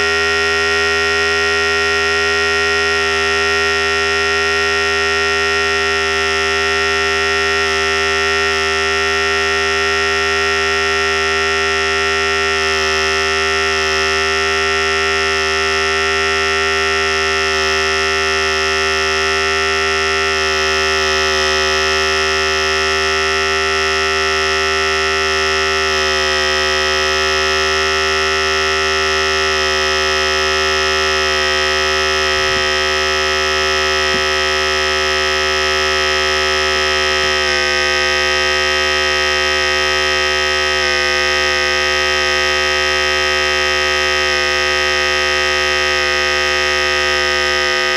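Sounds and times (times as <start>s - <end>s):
hair clippers buzzing: 0.0s - 47.9s.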